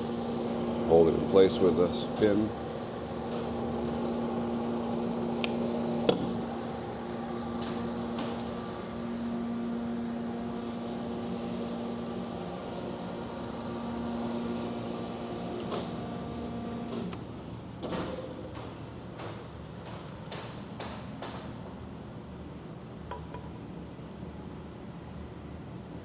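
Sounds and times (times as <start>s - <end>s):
grinder electric motors humming: 0.0s - 17.4s.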